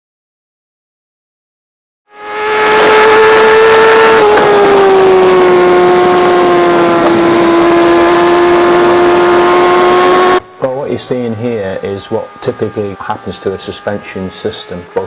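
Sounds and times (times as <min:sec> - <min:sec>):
motorcycle engine at high revs: 0:02.1 - 0:15.0.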